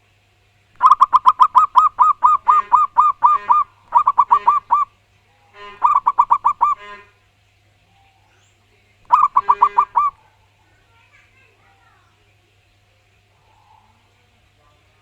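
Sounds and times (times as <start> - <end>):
dove cooing: 0.8 - 4.9, 5.6 - 7.1, 9.1 - 10.2.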